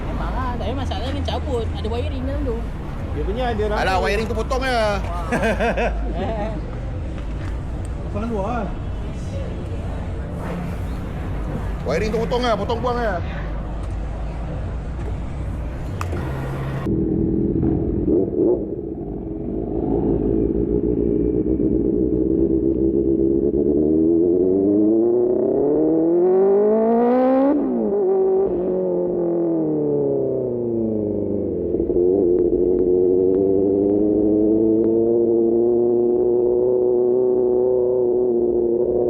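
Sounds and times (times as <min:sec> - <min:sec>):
motorcycle engine revving: 0:15.2 - 0:39.0.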